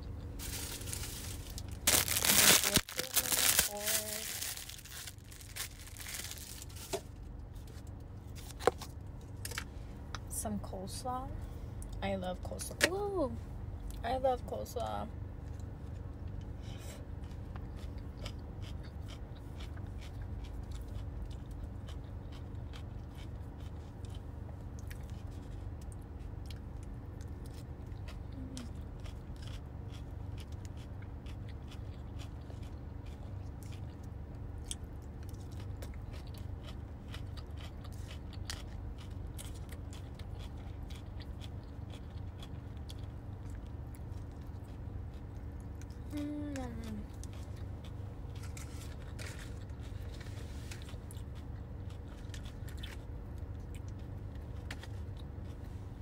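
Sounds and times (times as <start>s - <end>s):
chewing and crunching: 0.0s - 9.7s, 15.4s - 56.0s
steady low hum: 0.0s - 56.0s.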